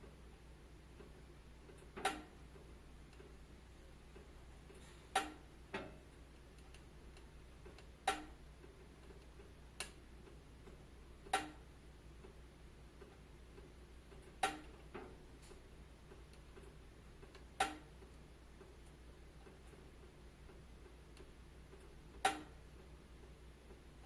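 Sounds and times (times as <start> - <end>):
low steady hiss: 0.0 - 24.0.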